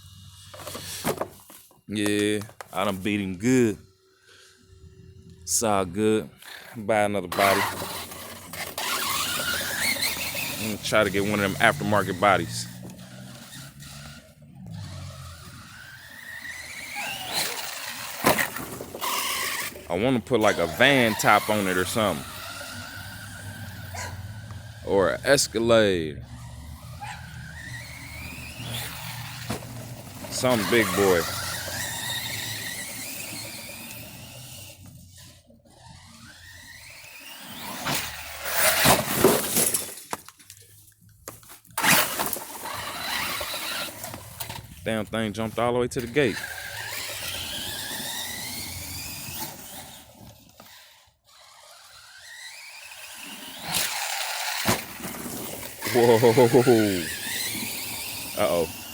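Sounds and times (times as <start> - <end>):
rc car motor whining: 0.0 - 40.0, 41.5 - 58.9
wheels rumbling on ground: 0.0 - 58.9
truck landing with rough clatter: 15.3 - 19.8, 37.6 - 40.4, 53.5 - 55.9.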